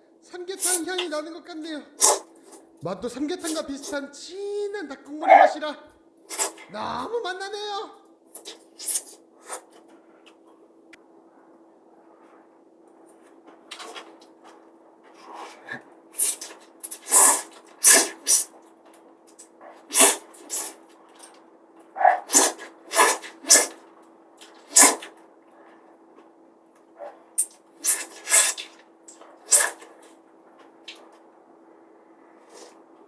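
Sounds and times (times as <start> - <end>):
faint steady hum: 0.0 - 33.0
person slurping noodles: 2.0 - 2.3, 6.3 - 6.6, 17.0 - 18.5, 19.9 - 20.8, 22.2 - 23.8, 24.6 - 25.1, 27.8 - 28.7, 29.5 - 29.8.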